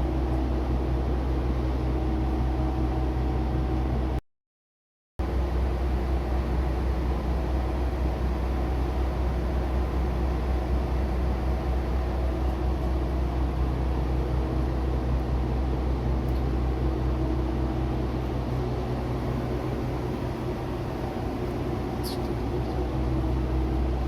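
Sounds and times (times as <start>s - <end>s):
diesel engine droning: 16.7s - 24.0s.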